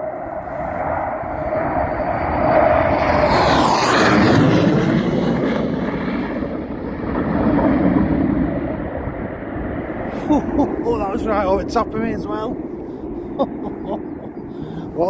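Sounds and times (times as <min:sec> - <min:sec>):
jet passing low overhead: 0:00.0 - 0:15.0.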